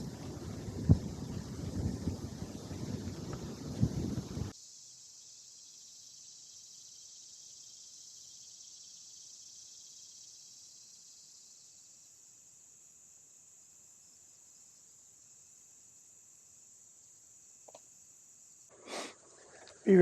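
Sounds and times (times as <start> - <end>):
wind noise on microphone: 0.0 - 4.5
insects chorus in trees: 0.0 - 20.0.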